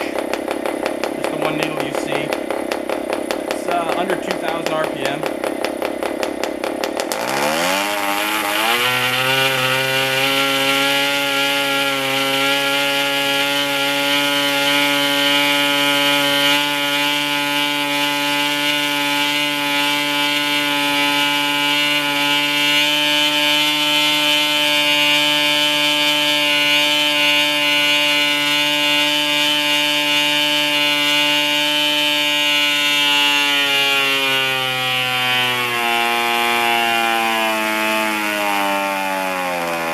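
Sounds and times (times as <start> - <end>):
model diesel engine revving: 0.0 - 38.9.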